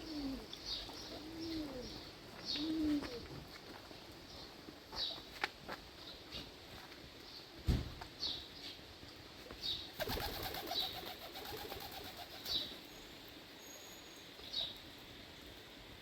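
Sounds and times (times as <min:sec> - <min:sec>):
wings fluttering: 0:10.0 - 0:12.8.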